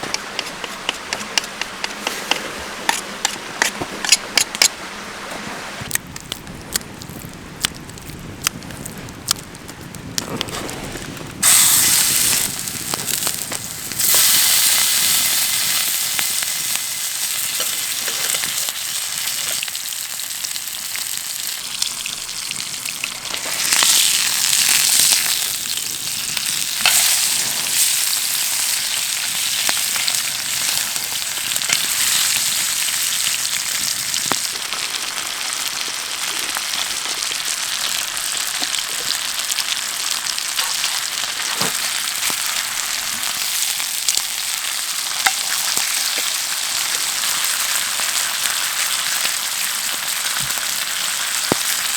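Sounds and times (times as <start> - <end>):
food sizzling in frying pan: 11.4 - 51.9.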